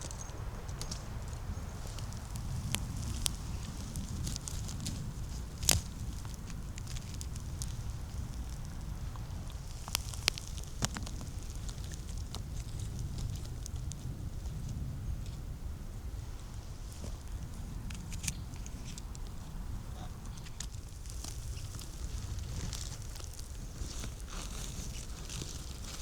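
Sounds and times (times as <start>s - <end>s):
twigs snapping: 0.0s - 14.1s, 17.8s - 19.4s, 20.2s - 26.0s
footsteps crunching dry leaves: 20.8s - 26.0s.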